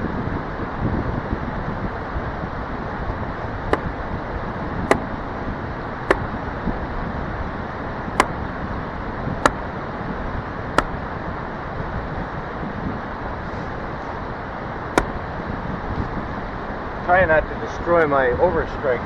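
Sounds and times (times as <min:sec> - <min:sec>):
axe splitting log: 0:03.7 - 0:03.9, 0:04.9 - 0:05.2, 0:15.0 - 0:15.2.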